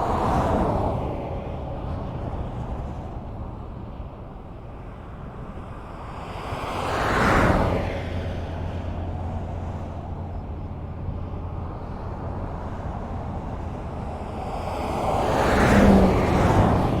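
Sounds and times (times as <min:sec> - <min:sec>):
highway traffic rumble: 0:00.0 - 0:17.0
vehicle passing close by: 0:06.4 - 0:17.0.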